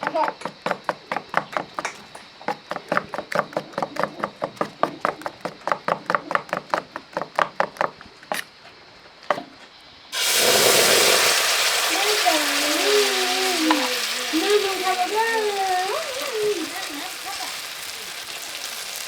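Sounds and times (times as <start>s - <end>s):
rhythmic tapping knocks: 0.0s - 8.0s
batter sizzling in hot oil: 9.8s - 19.0s.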